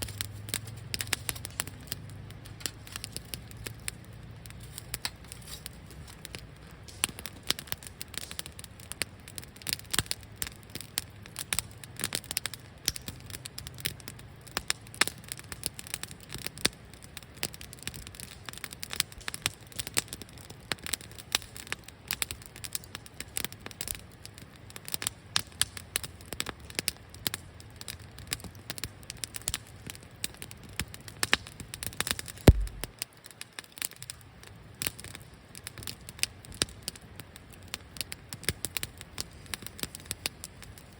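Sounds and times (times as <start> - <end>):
campfire crackling: 0.0 - 40.9
loud fire pop: 32.4 - 32.9.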